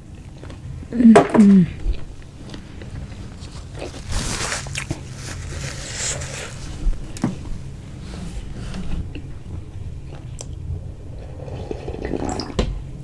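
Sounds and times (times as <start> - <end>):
chewing food: 1.9 - 7.5
brief rustles: 3.4 - 9.1.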